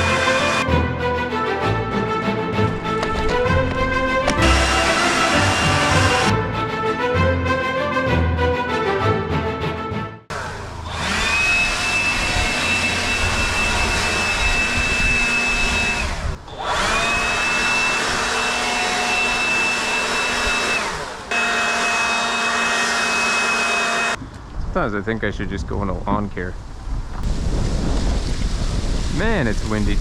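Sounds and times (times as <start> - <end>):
electric leaf blower whining: 0.0 - 0.7, 2.6 - 6.3, 10.3 - 24.2.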